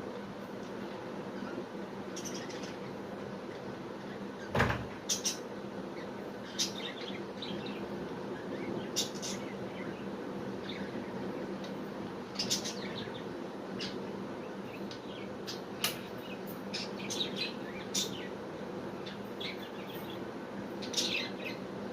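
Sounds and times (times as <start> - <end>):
budgerigars chirping: 12.4 - 14.0.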